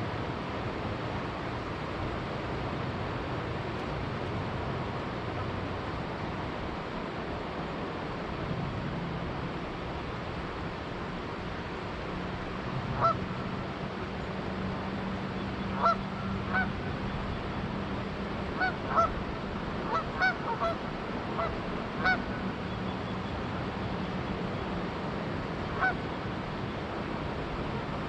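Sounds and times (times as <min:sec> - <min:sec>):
flowing river water: 0:00.0 - 0:28.0
geese honking: 0:13.0 - 0:13.2, 0:15.8 - 0:16.7, 0:18.6 - 0:19.2, 0:19.8 - 0:20.8, 0:21.4 - 0:22.4, 0:25.8 - 0:26.0.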